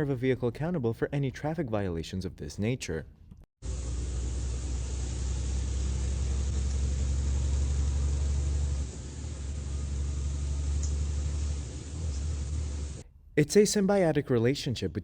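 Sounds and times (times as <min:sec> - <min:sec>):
vehicle engine and road noise: 0:03.7 - 0:13.0.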